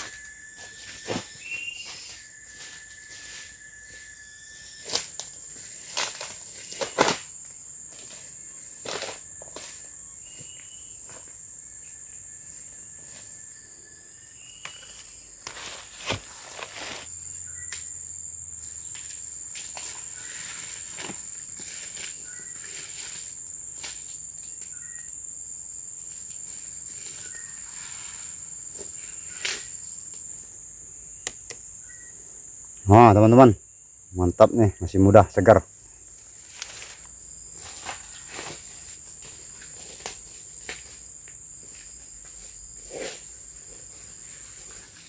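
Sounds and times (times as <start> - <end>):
insects droning: 0.0 - 45.0.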